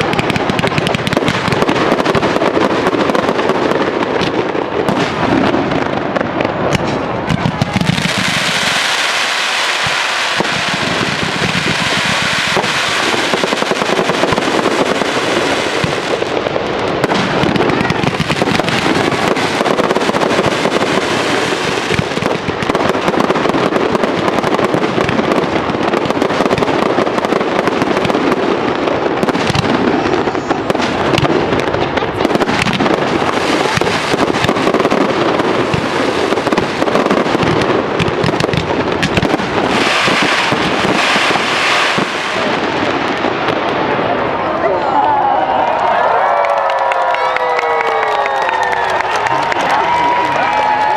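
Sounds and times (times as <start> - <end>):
fireworks crackling and popping: 0.0 - 50.9.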